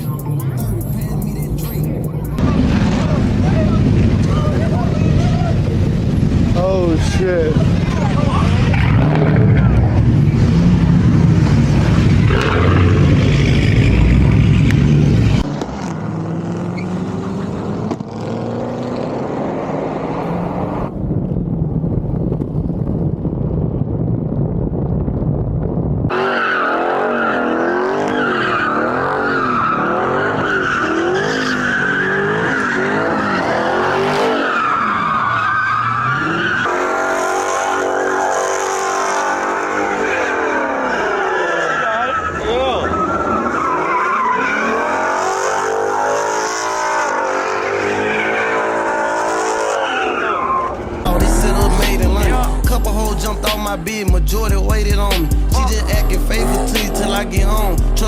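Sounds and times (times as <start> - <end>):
car engine revving: 0.0 - 20.9, 26.1 - 58.0
tires squealing: 1.0 - 18.1, 26.1 - 58.0.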